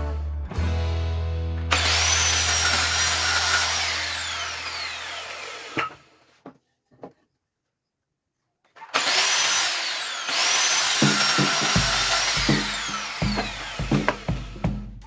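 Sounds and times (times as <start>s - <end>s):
power tool high whine: 1.7s - 6.1s, 9.0s - 14.6s.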